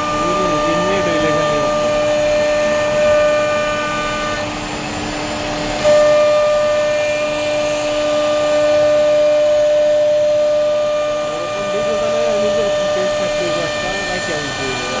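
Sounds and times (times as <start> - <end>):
router spindle cutting wood: 0.0 - 15.0.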